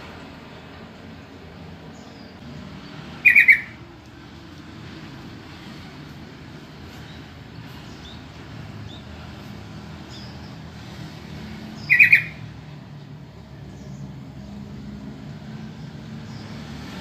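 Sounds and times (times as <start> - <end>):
bird call: 3.2 - 3.8, 11.8 - 12.4
faint bird chirps: 3.2 - 3.8, 11.8 - 12.5.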